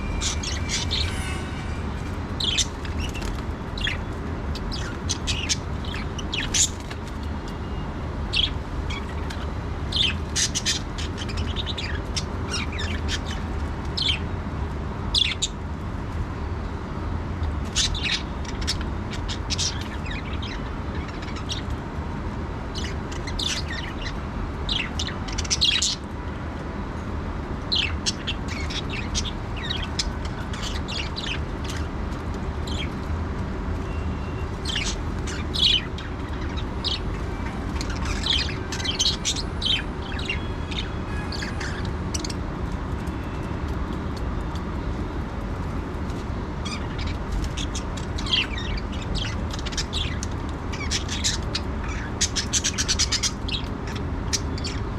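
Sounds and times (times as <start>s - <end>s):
budgerigars chirping: 0.0s - 1.8s, 2.4s - 7.0s, 8.3s - 14.2s, 17.7s - 21.7s, 22.8s - 26.0s, 27.7s - 31.9s, 34.4s - 42.4s, 46.6s - 54.9s.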